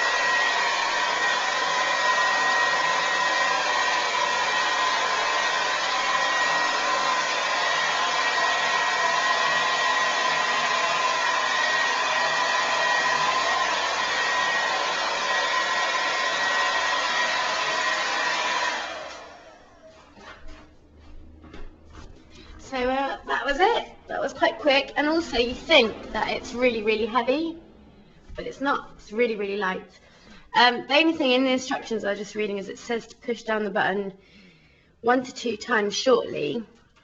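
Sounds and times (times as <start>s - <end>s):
hair dryer blowing: 0.0s - 20.0s, 23.5s - 27.8s.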